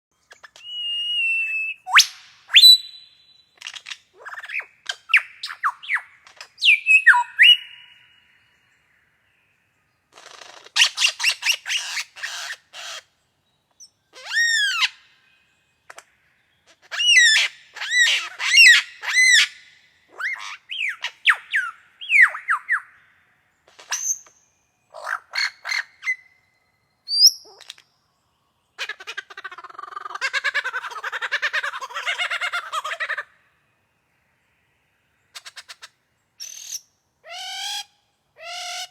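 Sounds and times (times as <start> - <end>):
lyrebird singing: 0.2 - 9.2, 10.0 - 27.9, 28.7 - 33.4, 35.2 - 38.9.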